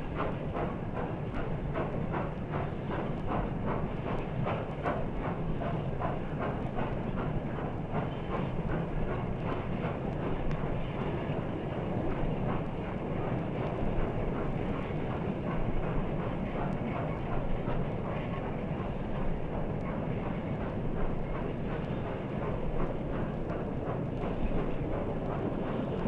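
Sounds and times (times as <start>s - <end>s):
steam locomotive chuffing: 0.0s - 26.0s.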